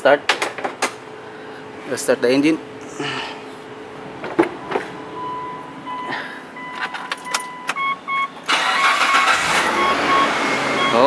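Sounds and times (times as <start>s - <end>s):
dashboard warning beeps: 4.5s - 11.0s
car engine cranking and starting: 6.6s - 11.0s
ignition key clicks: 6.7s - 9.4s.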